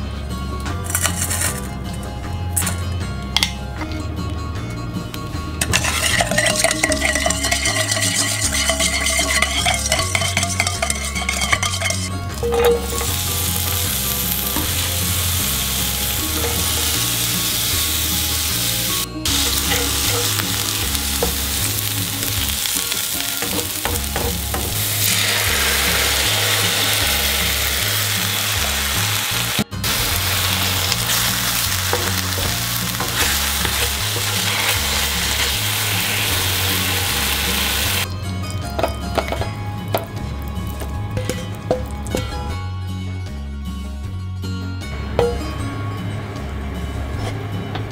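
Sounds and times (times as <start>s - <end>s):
wooden spatula stirring: 5.7s - 12.1s
onions sizzling in oil: 12.7s - 38.1s.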